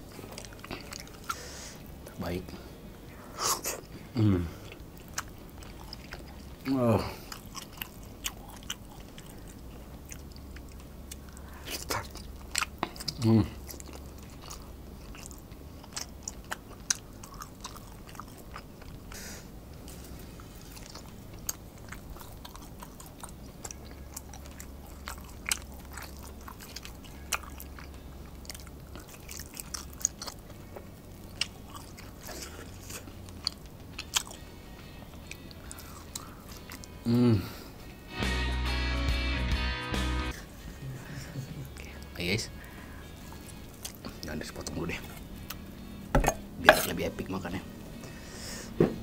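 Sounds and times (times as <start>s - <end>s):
wet chewing: 0.0s - 1.5s, 4.6s - 19.2s, 19.8s - 37.0s, 42.6s - 47.0s.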